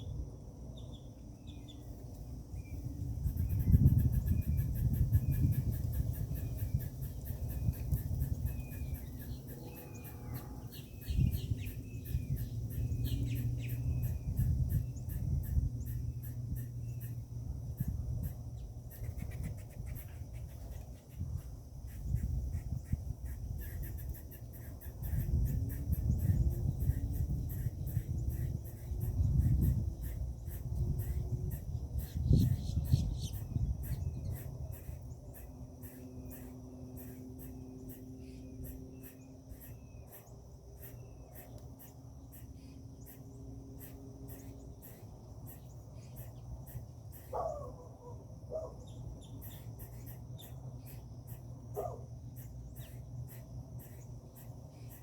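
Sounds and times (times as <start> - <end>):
insects chirping: 0.0 - 55.0
birds calling: 0.8 - 55.0.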